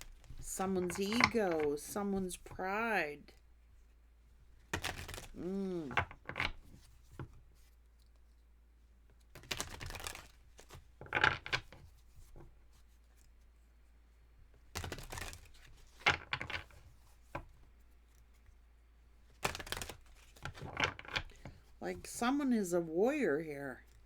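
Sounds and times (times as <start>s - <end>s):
cards being shuffled: 0.0s - 2.9s, 4.6s - 8.4s, 9.1s - 13.4s, 14.7s - 18.5s, 19.2s - 22.2s.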